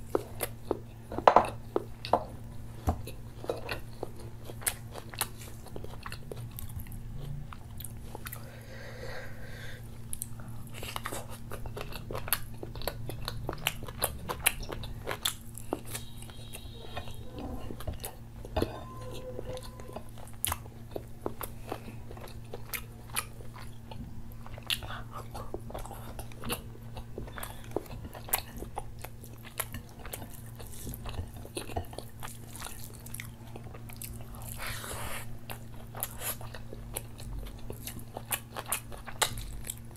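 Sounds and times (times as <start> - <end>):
low steady hum: 0.0 - 39.9
wet chewing: 9.9 - 39.9.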